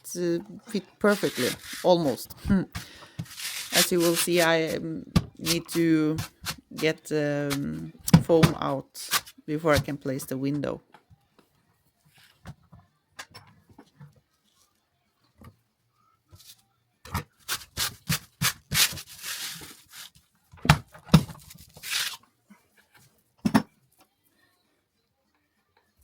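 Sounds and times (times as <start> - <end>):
scraping foam: 1.0 - 2.2, 3.2 - 4.8, 17.4 - 20.2.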